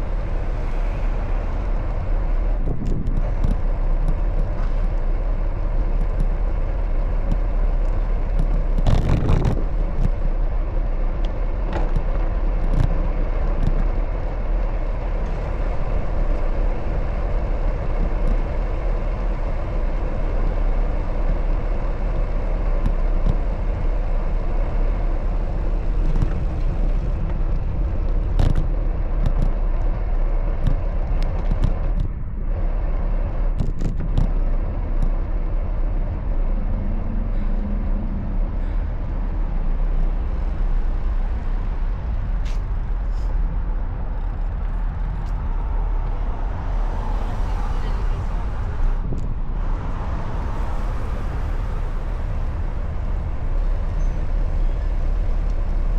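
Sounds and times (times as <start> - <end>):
road traffic noise: 0.0 - 55.9
wind rumbling on microphone: 0.0 - 55.9.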